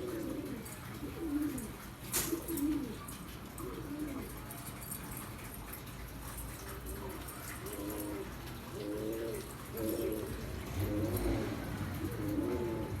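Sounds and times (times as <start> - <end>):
pigeons cooing: 0.0 - 4.4, 7.0 - 13.0.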